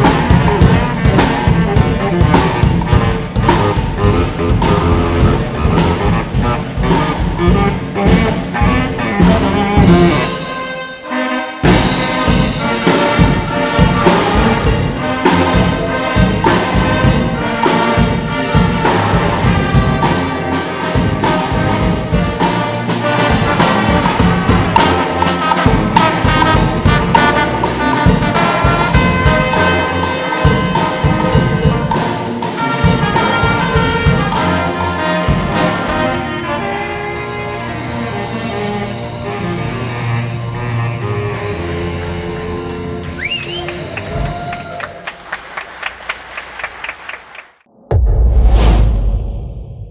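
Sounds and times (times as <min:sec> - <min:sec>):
percussion: 0:00.0 - 0:10.5, 0:11.6 - 0:37.0
trumpets and trombones: 0:00.0 - 0:44.4.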